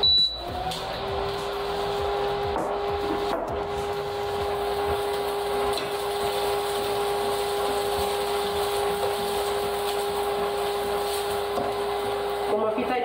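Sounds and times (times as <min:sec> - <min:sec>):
vegetables sizzling in a pot: 0:00.4 - 0:13.0.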